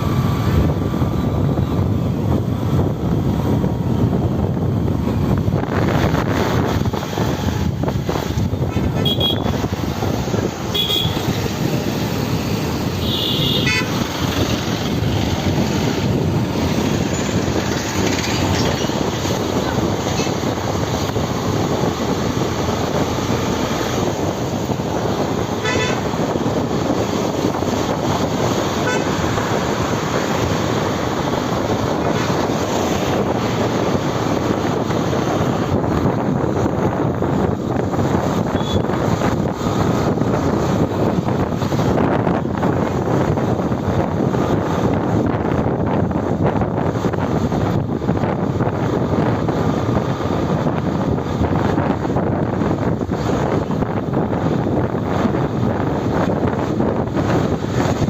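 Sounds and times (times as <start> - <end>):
traffic noise: 0.0 - 58.0
wind rush: 0.0 - 58.0
vehicle horn toots: 8.7 - 9.6, 10.7 - 11.3, 13.0 - 14.0, 25.6 - 26.2, 28.8 - 29.2, 38.5 - 38.9.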